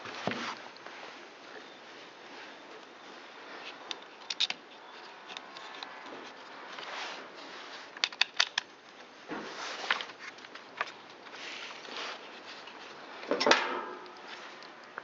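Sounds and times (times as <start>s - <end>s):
soft rustling: 0.0s - 8.0s, 8.8s - 13.2s, 14.2s - 15.0s
sharp light plastic clicks: 3.8s - 6.1s, 8.0s - 8.7s.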